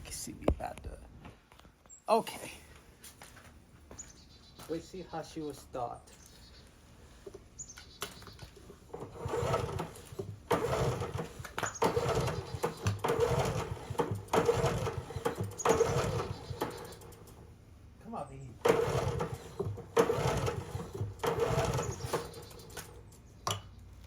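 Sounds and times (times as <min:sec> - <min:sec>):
generator recoil starter whirring: 0:08.0 - 0:17.6, 0:18.5 - 0:23.3.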